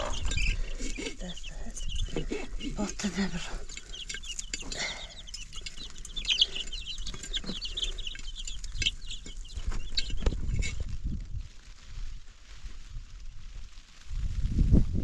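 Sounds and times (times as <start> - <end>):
chickens chirping: 0.0 - 11.0.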